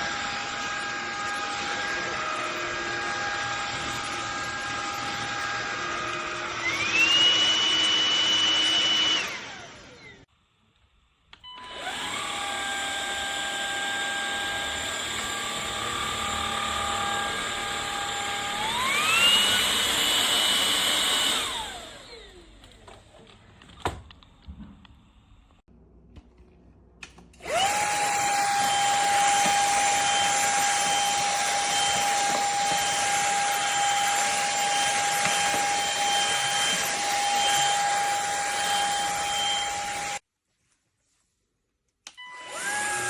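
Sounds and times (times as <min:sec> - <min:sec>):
stick vacuum motor whining: 0:00.0 - 0:10.3, 0:11.4 - 0:24.2, 0:27.4 - 0:40.2, 0:42.1 - 0:43.0.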